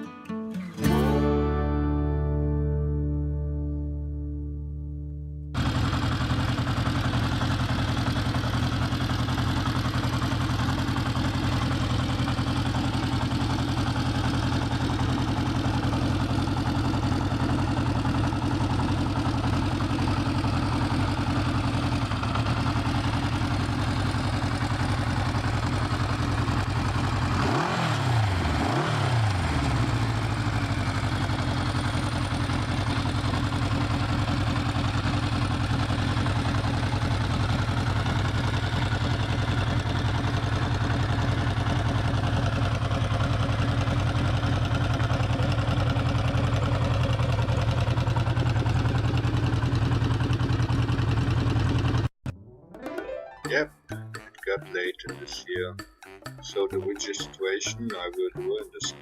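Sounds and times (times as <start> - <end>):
motorcycle engine idling: 5.5 - 52.1
motorcycle engine revving: 5.6 - 52.1.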